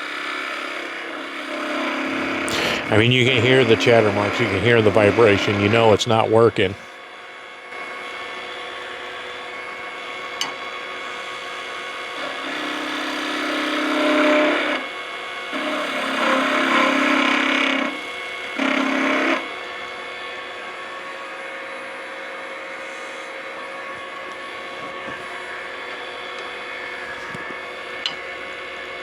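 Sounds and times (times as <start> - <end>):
chisel cutting wood with chatter: 0.0 - 6.7, 7.8 - 20.9
wood lathe spinning: 0.0 - 29.0.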